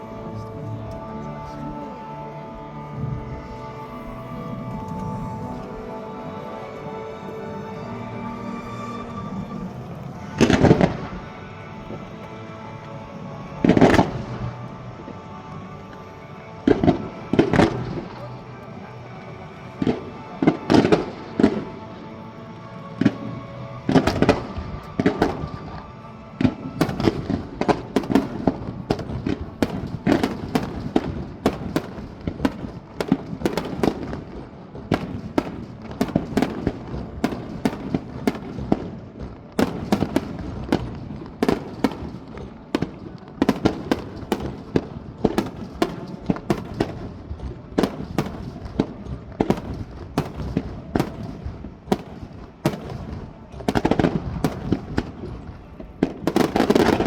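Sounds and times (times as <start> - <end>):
fireworks bangs and booms: 9.3 - 11.3, 13.6 - 15.7, 23.9 - 57.0.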